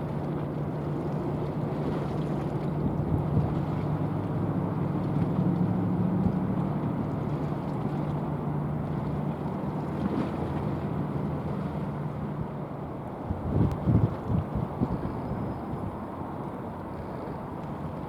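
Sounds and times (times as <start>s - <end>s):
rushing water: 0.0s - 18.0s
wind noise: 13.2s - 15.9s.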